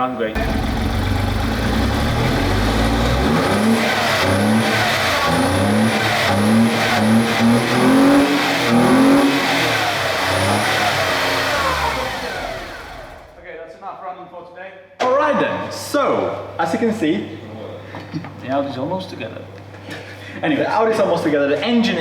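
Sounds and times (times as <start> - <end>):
car engine idling and revving: 0.4 - 13.4.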